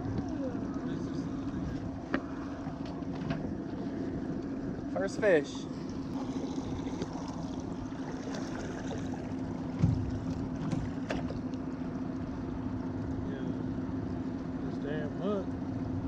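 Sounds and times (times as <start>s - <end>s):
boat motor humming: 0.0s - 16.0s
dull thump: 9.7s - 11.4s.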